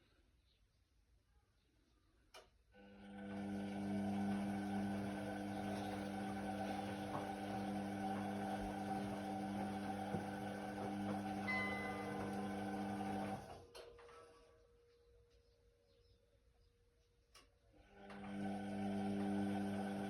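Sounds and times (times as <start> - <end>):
washing machine motor humming: 2.8 - 13.7, 17.8 - 20.0.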